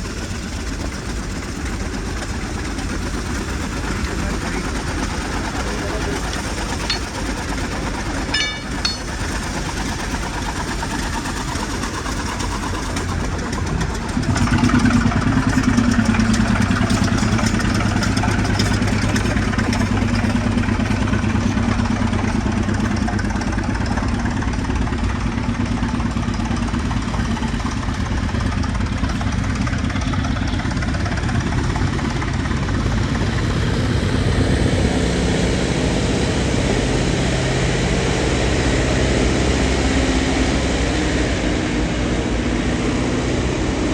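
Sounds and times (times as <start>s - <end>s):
air compressor engine running: 0.0s - 40.6s
deep steady hum: 2.6s - 10.1s.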